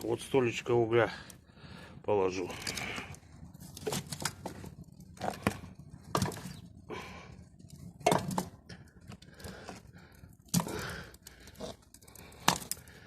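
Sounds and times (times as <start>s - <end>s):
coal clunking into stove: 2.6s - 6.6s, 7.7s - 9.8s, 10.4s - 12.9s.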